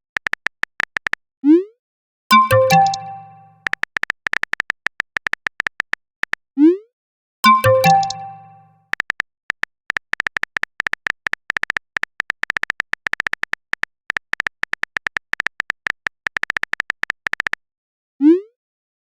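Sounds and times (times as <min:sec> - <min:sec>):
phone keyboard typing clicks: 0:00.1 - 0:01.2, 0:02.3 - 0:06.4, 0:07.5 - 0:17.6.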